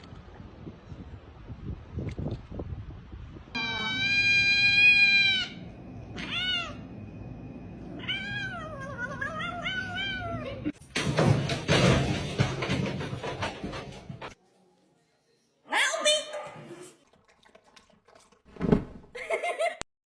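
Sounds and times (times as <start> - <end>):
cat meowing: 3.6 - 6.8, 8.0 - 10.6.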